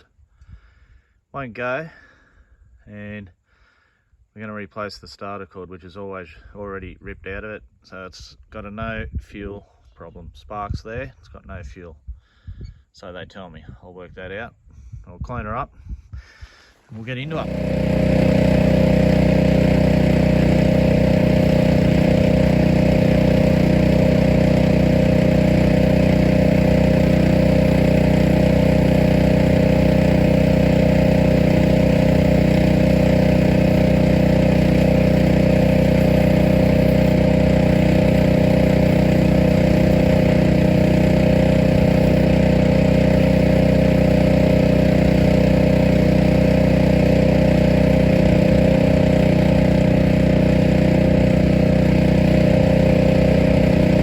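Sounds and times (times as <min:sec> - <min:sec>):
steady machine drone: 0:17.3 - 0:54.0.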